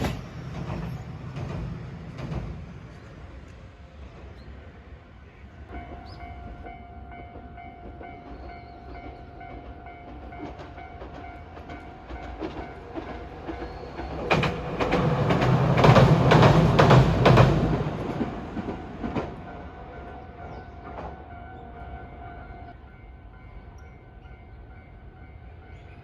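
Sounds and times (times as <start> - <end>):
wheels clacking over rail joints: 0.0 - 4.4, 5.7 - 21.8
train rumble: 0.0 - 26.0.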